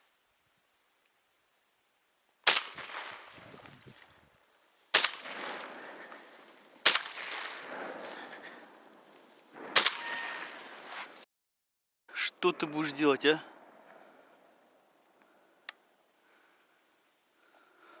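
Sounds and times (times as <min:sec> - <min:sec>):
shotgun shots echoing: 0:02.5 - 0:04.0, 0:04.9 - 0:11.2.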